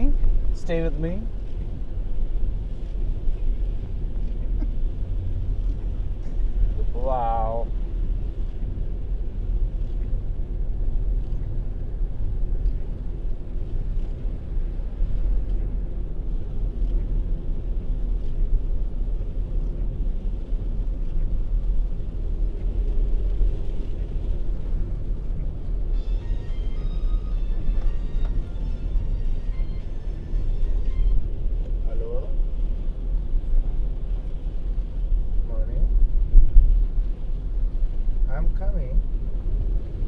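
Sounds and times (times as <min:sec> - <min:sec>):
car engine and road rumble: 0:00.0 - 0:40.0.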